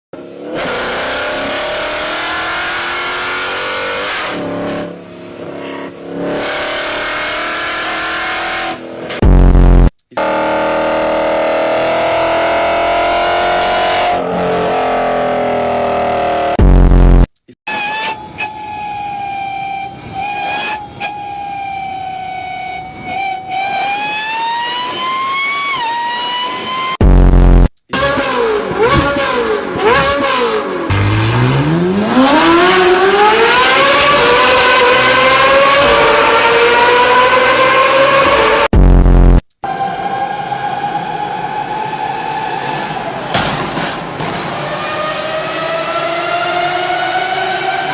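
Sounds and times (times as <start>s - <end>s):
car exhaust accelerating: 9.2s - 17.3s, 27.0s - 39.4s.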